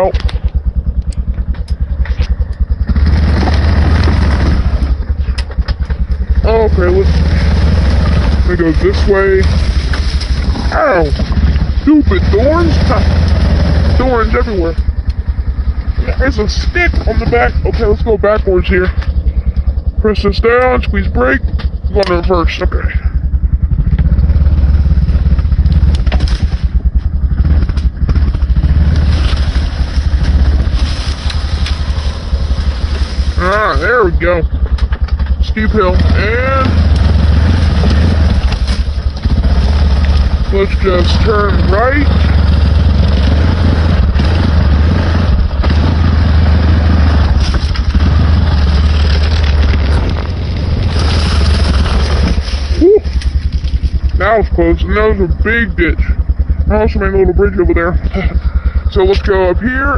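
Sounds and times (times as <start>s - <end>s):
atv engine throbbing: 0.0s - 59.9s
handling noise: 25.0s - 35.9s, 36.5s - 44.7s, 47.1s - 54.2s.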